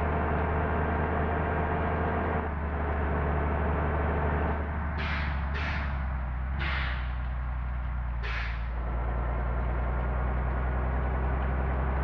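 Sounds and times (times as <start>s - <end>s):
diesel engine droning: 0.0s - 12.0s
air brake hisses: 5.0s - 6.0s, 6.6s - 7.2s, 8.2s - 8.8s.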